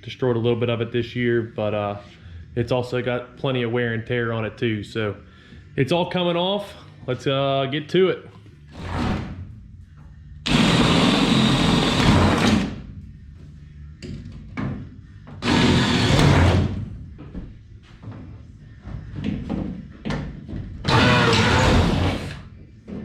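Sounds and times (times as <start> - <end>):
cordless drill running: 10.5 - 12.6, 15.4 - 16.6.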